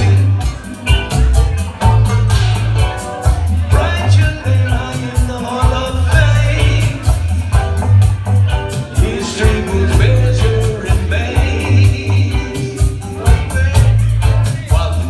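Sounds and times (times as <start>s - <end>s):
person singing lead vocal: 0.0s - 1.0s, 3.6s - 8.0s, 8.7s - 15.0s
hi-hat beat: 0.0s - 15.0s
pulsing bass line: 0.0s - 15.0s
reggae band playing: 0.0s - 15.0s.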